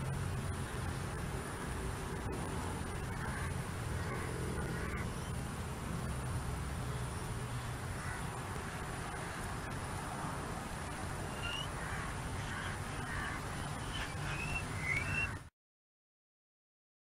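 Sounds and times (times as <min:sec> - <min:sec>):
bird chirps: 0:11.2 - 0:11.8, 0:12.6 - 0:15.5.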